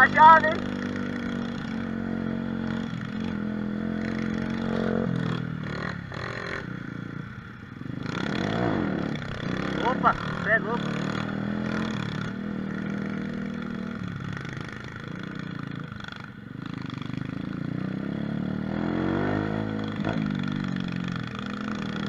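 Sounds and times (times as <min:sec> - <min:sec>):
mini motorcycle engine revving: 0:00.0 - 0:22.0.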